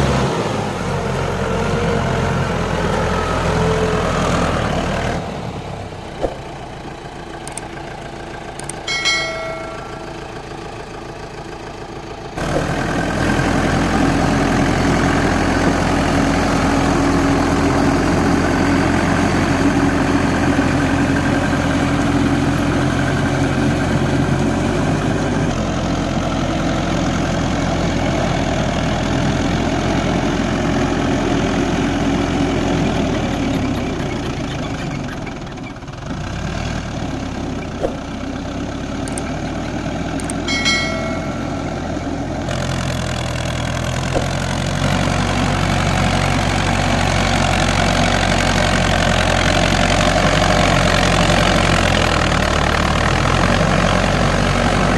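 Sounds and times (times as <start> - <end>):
tractor diesel engine running: 0.0 - 54.9
high-pitched tone: 8.6 - 10.5, 40.3 - 42.3.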